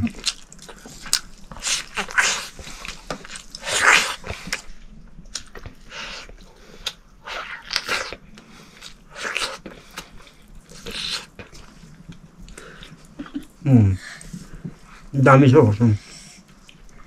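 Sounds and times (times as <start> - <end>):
person chewing meat: 0.0 - 4.7, 5.3 - 13.2.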